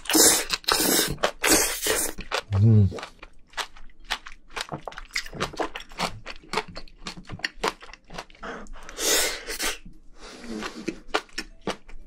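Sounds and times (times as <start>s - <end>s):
wet crunches and mouth clicks: 0.0s - 8.9s, 10.5s - 12.0s
person chewing food: 0.0s - 12.0s.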